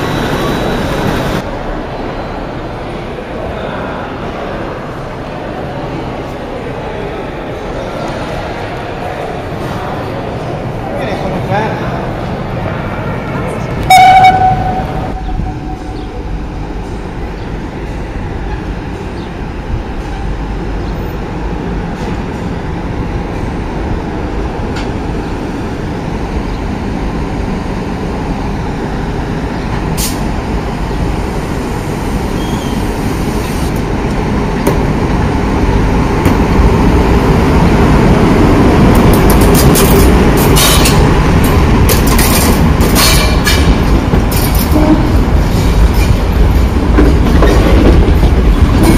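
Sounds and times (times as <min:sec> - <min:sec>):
train rumbling past: 0:00.0 - 0:48.9
brief tone: 0:13.9 - 0:16.2.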